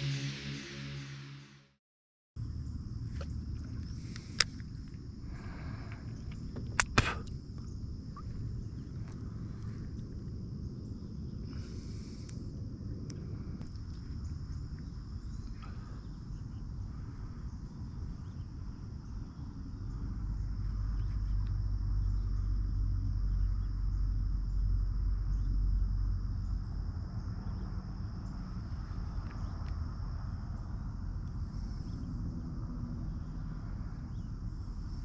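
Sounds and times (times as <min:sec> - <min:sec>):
low rumble: 0:00.0 - 0:01.8, 0:02.4 - 0:35.0.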